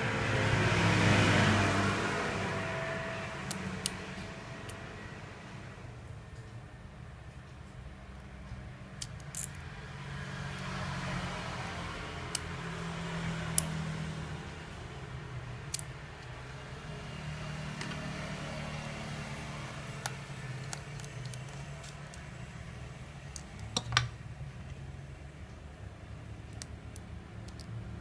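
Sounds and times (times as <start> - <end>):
small tools clicking and tapping: 7.6 - 9.7, 20.0 - 22.4, 23.3 - 24.2, 26.4 - 27.8.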